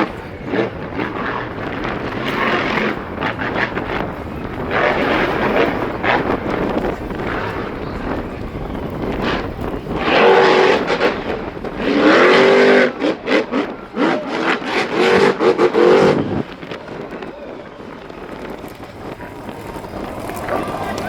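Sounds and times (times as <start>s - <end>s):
rushing background noise: 0.0s - 21.0s
vehicle engine revving: 0.0s - 21.0s.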